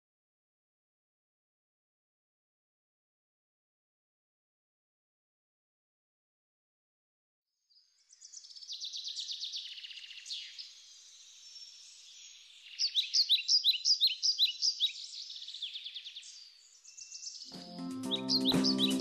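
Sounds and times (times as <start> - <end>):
songbirds trilling and chirping: 7.7 - 19.0.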